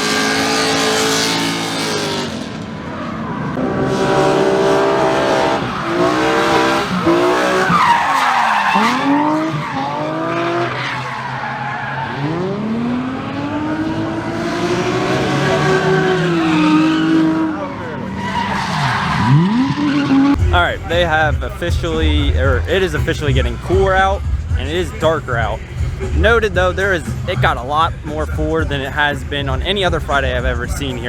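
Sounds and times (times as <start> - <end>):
tyres squealing and skidding: 0.0 - 21.6
car engine revving hard: 0.0 - 27.7.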